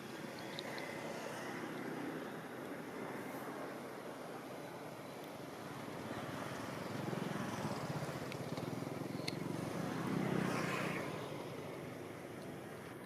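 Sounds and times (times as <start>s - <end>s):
faint clicks: 0.4s - 1.0s, 8.2s - 9.4s.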